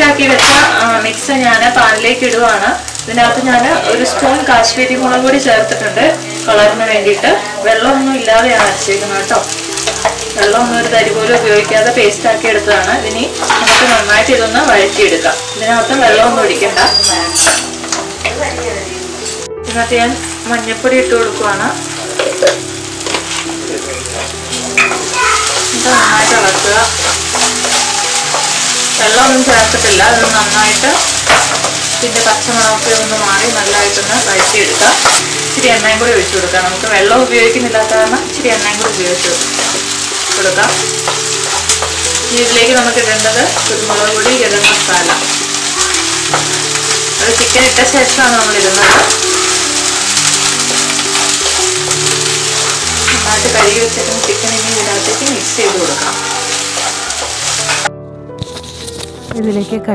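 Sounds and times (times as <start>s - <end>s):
paste sizzling in oil: 0.0s - 59.3s
soft background music: 0.0s - 59.9s
wooden spatula scraping pan: 22.1s - 59.7s.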